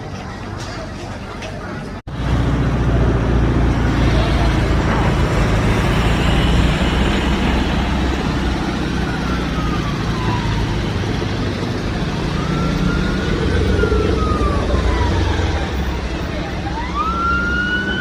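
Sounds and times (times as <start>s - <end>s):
road traffic rumble: 0.0s - 18.0s
emergency siren wailing: 4.0s - 18.0s.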